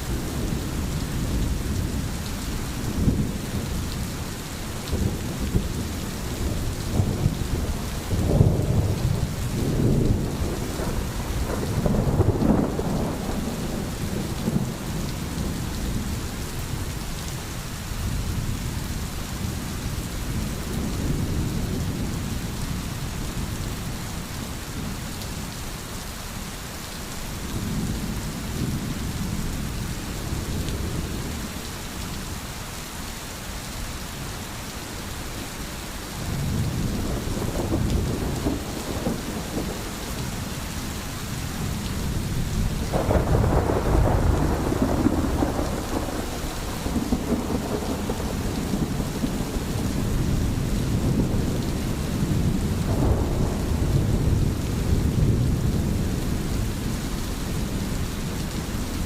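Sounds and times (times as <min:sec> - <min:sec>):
steady rain: 0:00.0 - 0:59.0
low rolling thunder: 0:04.8 - 0:16.9, 0:36.2 - 0:59.0.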